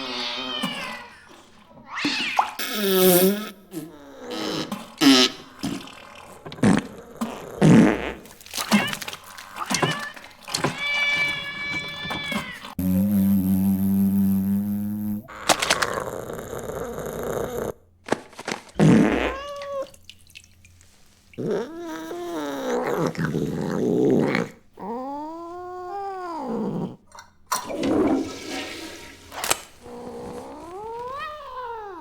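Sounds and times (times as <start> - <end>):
cat yowling: 0.0 - 2.6, 8.5 - 12.8, 19.2 - 20.0, 29.9 - 32.0.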